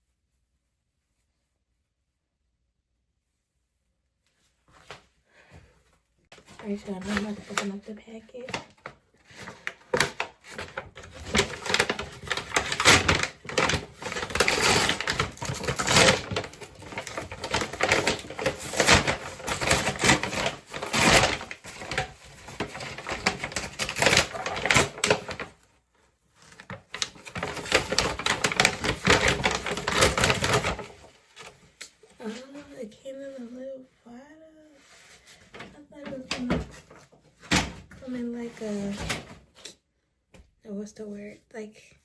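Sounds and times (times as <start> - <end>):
packaging crinkling and ripping: 6.4 - 25.6, 26.4 - 31.8.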